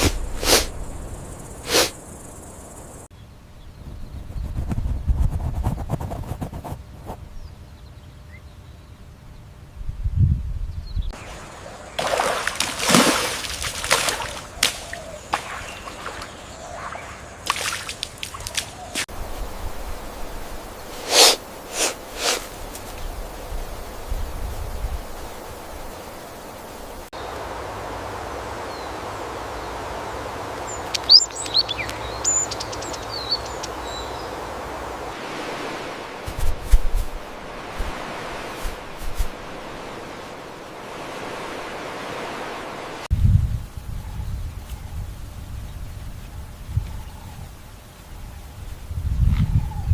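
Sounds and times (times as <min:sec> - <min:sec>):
steady hiss: 0:00.0 - 0:03.1, 0:18.7 - 0:43.9
water splashing and sloshing: 0:11.2 - 0:23.1, 0:32.6 - 0:43.1
birds chirping and whistling: 0:14.4 - 0:17.5, 0:30.7 - 0:34.3.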